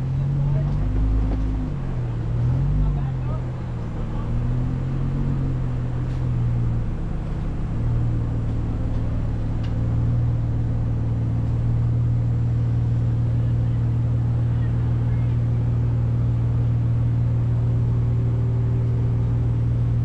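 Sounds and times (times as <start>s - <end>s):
engine running at low revs: 0.0s - 20.0s.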